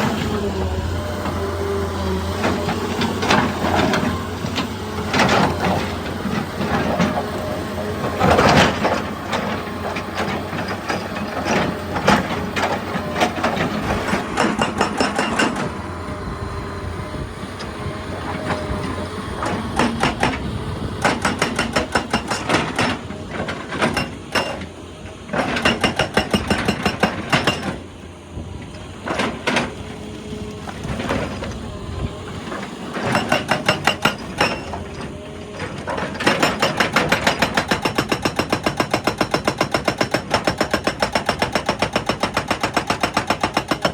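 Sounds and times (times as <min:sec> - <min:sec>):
hydraulic rock breaker hammering: 0:00.0 - 0:15.9, 0:18.2 - 0:27.9, 0:32.3 - 0:43.9
diesel engine running: 0:00.0 - 0:25.3, 0:27.8 - 0:37.2.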